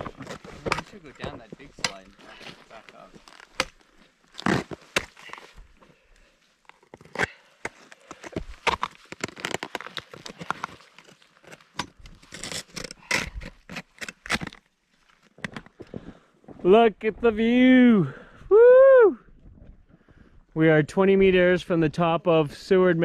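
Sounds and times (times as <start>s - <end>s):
crampon footsteps crunching on icy snow: 0.0s - 16.6s.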